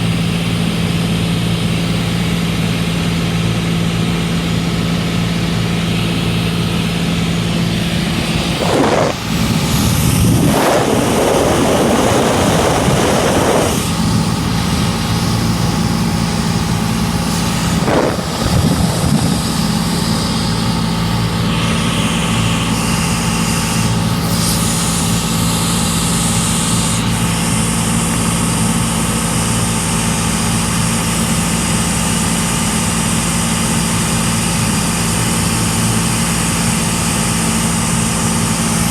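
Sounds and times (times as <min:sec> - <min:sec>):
aircraft propeller engine droning: 0:00.0 - 0:38.9
rushing noise: 0:06.8 - 0:24.3.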